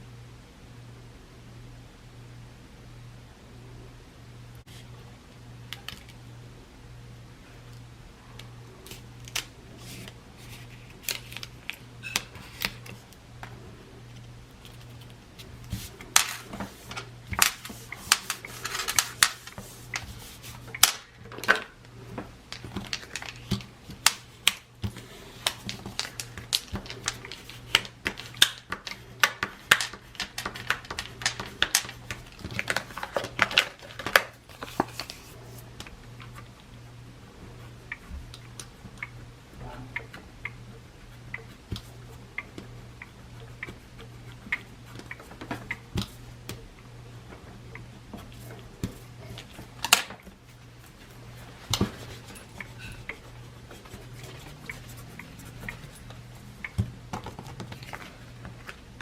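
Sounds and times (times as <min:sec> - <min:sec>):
steady low hum: 0:00.0 - 0:59.0
paper rustling: 0:08.9 - 0:11.8, 0:14.6 - 0:21.7, 0:24.9 - 0:35.6.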